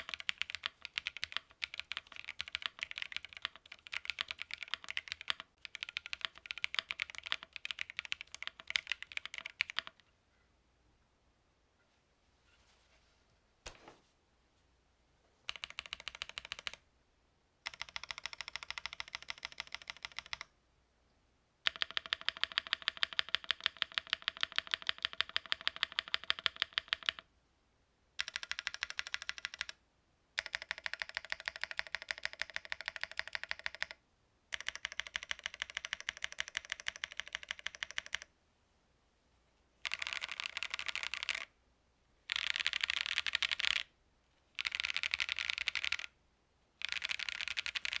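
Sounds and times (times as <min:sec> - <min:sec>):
mechanical keyboard typing: 0:00.0 - 0:10.0, 0:15.5 - 0:16.8, 0:17.6 - 0:20.5, 0:21.6 - 0:27.3, 0:28.2 - 0:29.8, 0:30.4 - 0:38.3, 0:39.8 - 0:41.5, 0:42.3 - 0:43.9, 0:44.6 - 0:46.2, 0:46.8 - 0:48.0.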